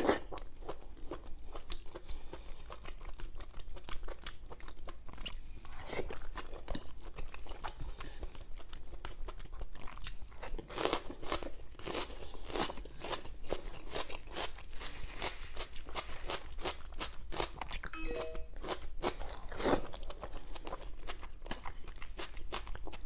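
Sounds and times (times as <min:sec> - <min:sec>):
person chewing with smacks: 0:00.0 - 0:17.9, 0:18.8 - 0:23.0.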